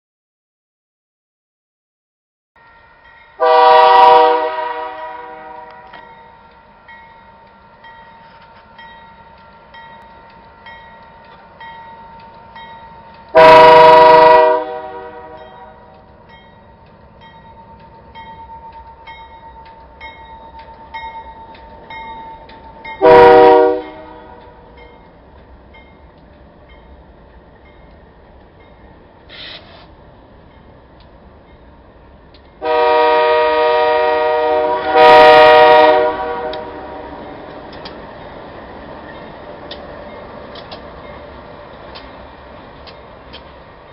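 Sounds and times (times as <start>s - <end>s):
crossing bell dinging: 2.6s - 29.0s, 35.0s - 41.5s
locomotive air horn blasts: 3.4s - 6.0s, 13.3s - 15.9s, 23.0s - 24.5s, 32.6s - 37.2s.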